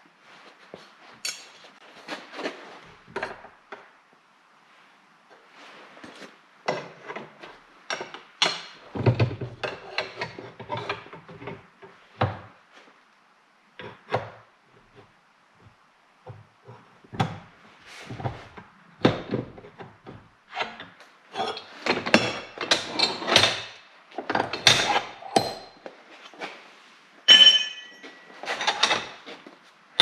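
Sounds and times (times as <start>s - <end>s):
tools and metal clanking: 1.2s - 3.5s, 21.3s - 26.6s, 27.2s - 30.0s.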